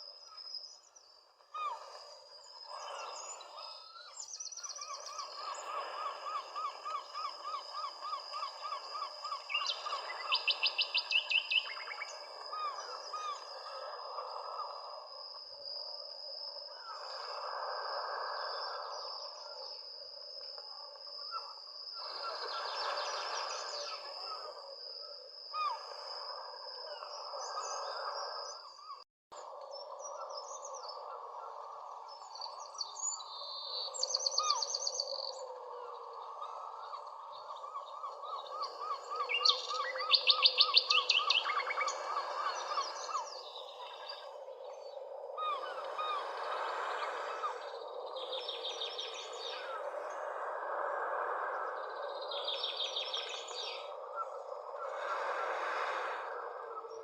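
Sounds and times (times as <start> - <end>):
outdoor background noise: 0.0 - 57.0
birds singing: 0.2 - 13.6, 32.1 - 49.9, 51.8 - 54.4.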